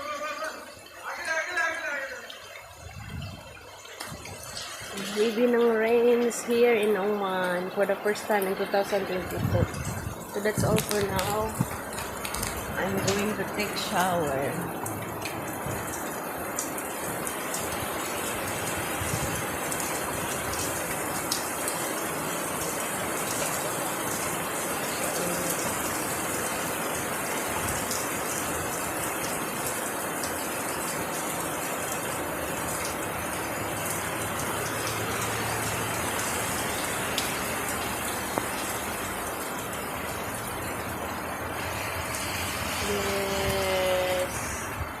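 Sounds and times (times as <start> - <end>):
heavy falling water hiss: 41.3 - 45.0.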